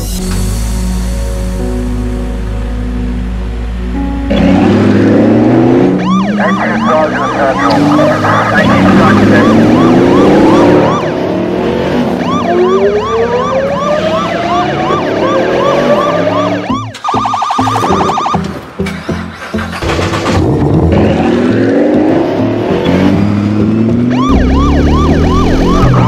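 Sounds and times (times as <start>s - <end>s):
car engines revving: 4.2s - 26.0s
police siren: 5.6s - 18.6s, 24.0s - 26.0s.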